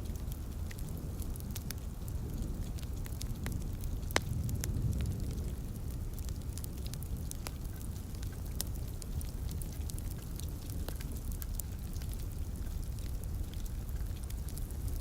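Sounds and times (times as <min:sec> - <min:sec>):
faint hiss of rain: 0:00.0 - 0:15.0
wood fire crackling: 0:00.0 - 0:15.0.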